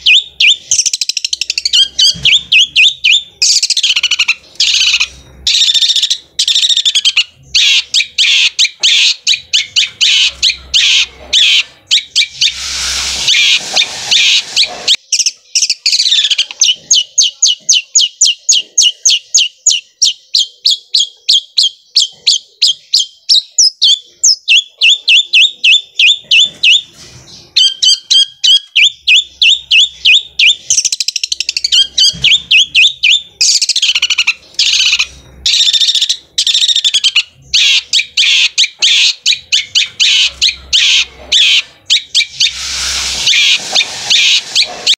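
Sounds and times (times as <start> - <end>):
harsh rasping bird call: 0.0 - 15.1, 27.6 - 44.9
bird singing rapid repeated notes: 0.0 - 44.9.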